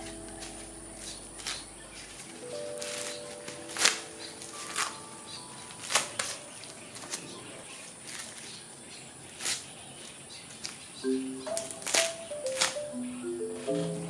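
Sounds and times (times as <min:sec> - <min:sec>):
soft plucked music: 0:00.0 - 0:06.4, 0:11.0 - 0:14.0.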